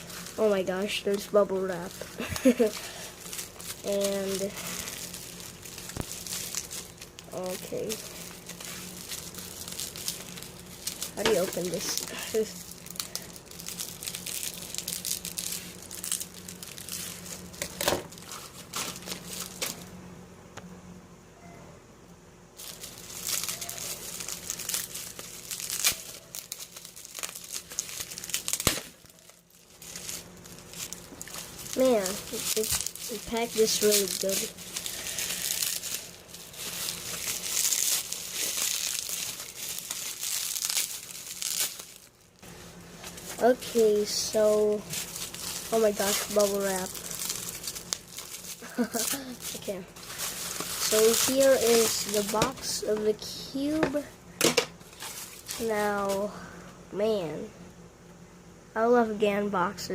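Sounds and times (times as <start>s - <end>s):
bubble wrap crinkling: 0.0s - 20.0s, 22.6s - 54.0s, 54.7s - 56.4s.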